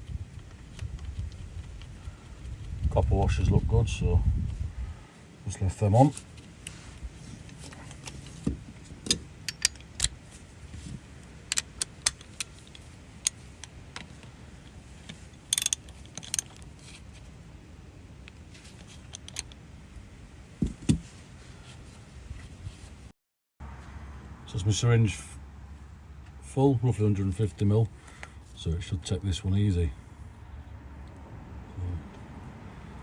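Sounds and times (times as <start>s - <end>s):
rustle: 0.0s - 33.0s
dull knocks: 20.6s - 21.1s.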